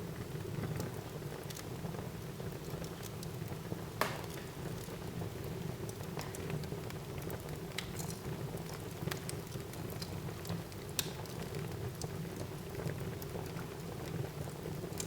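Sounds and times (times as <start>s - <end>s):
burning wood crackling and popping: 2.5s - 15.0s.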